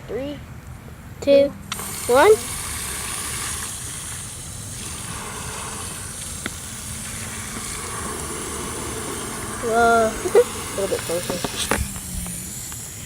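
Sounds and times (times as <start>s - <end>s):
water rushing: 1.8s - 12.0s.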